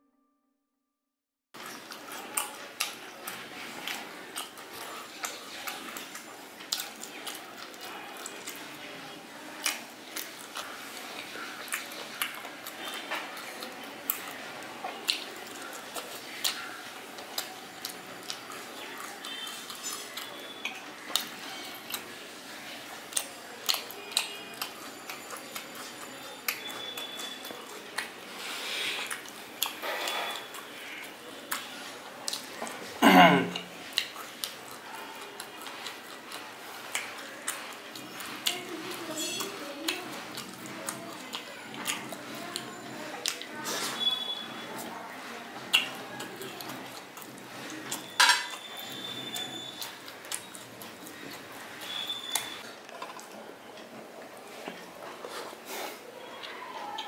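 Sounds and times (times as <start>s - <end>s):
soft wet chewing: 1.6s - 57.0s
sharp mouth clicks and smacks: 45.7s - 48.6s.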